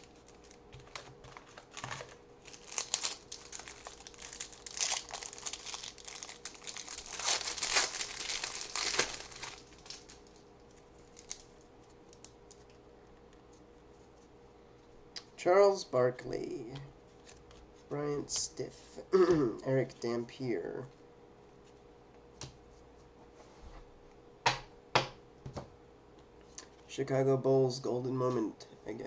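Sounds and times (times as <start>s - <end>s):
wrapper crinkling: 0.0s - 12.8s.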